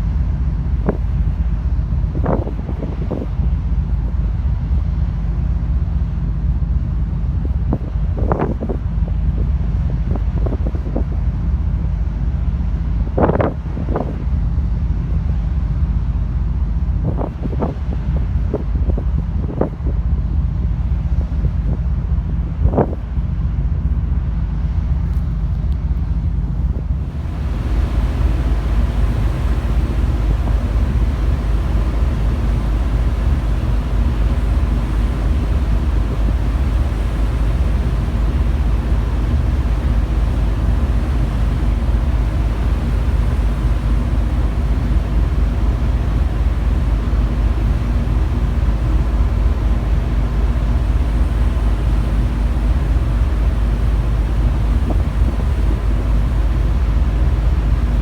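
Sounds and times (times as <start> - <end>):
rushing sea: 0.0 - 58.0
wind on microphone: 2.0 - 3.4, 7.4 - 11.3, 17.0 - 20.2, 21.2 - 23.2, 25.3 - 58.0
ship engines rumbling: 25.4 - 58.0.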